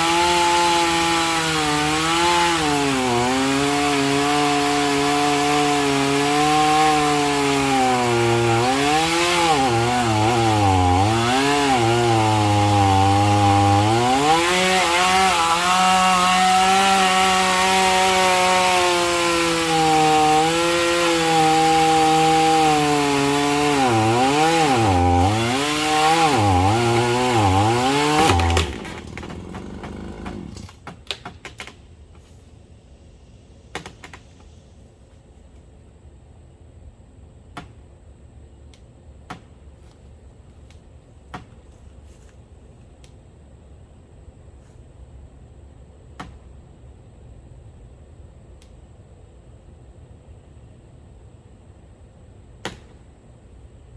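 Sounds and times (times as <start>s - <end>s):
chainsaw cutting: 0.0s - 30.8s.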